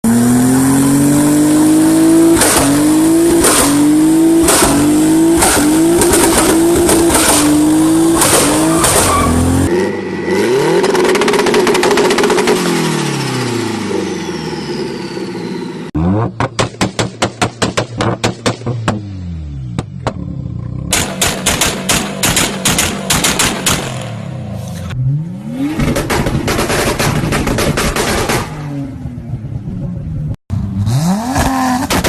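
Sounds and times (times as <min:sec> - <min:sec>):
car engine at high revs: 0:00.0 - 0:32.0
anti-lag bangs: 0:20.9 - 0:24.1.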